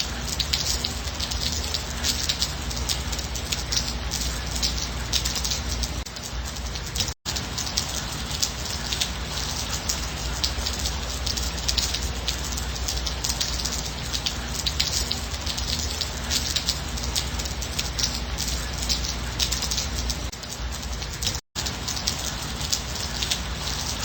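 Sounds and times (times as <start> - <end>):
rain hiss: 0.0 - 24.0
raindrops ticking: 0.0 - 24.0.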